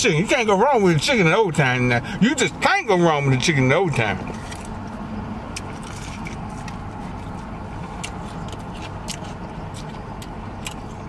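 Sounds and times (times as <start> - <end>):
steady low hum: 0.0 - 11.0
crunchy chewing: 4.2 - 11.0.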